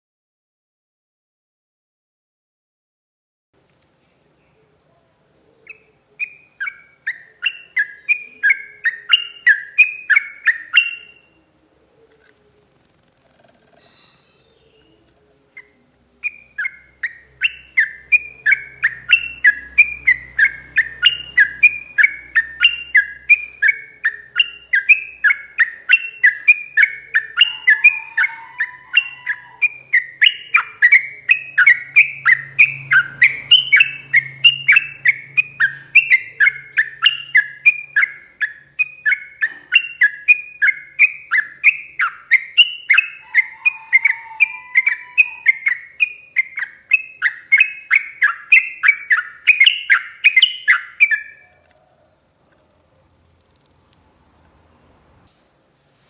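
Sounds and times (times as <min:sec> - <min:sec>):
bird singing whistled notes: 0:05.7 - 0:11.4, 0:13.8 - 0:15.0, 0:15.6 - 0:51.6.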